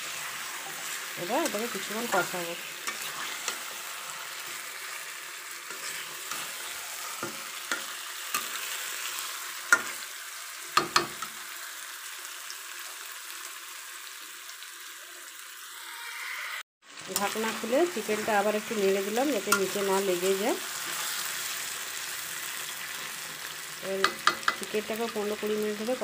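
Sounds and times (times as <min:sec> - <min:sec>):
chicken sizzling in oil: 0:00.0 - 0:26.0
metal spatula clacking against pan: 0:10.8 - 0:11.2, 0:24.0 - 0:24.7.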